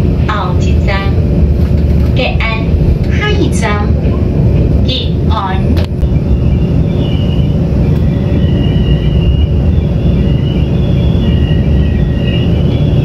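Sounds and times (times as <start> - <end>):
train wheels rumbling on track: 0.0 - 13.0
faint high wavering tones: 5.0 - 13.0.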